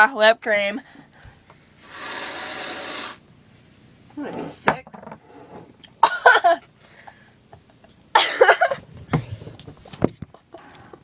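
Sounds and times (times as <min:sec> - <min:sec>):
girl coughing hard: 0:06.0 - 0:06.6, 0:08.1 - 0:08.8.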